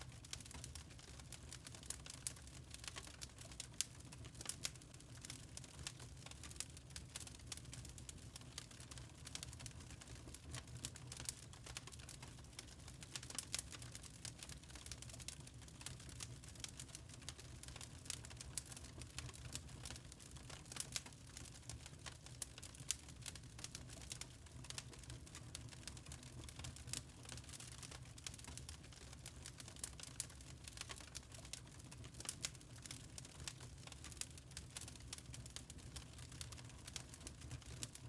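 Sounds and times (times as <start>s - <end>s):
burning charcoal crackling: 0.0s - 38.0s.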